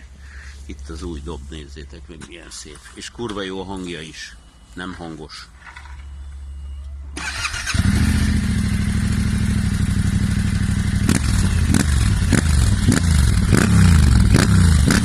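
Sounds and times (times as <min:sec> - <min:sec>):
motorcycle engine idling and revving: 0:07.2 - 0:15.0.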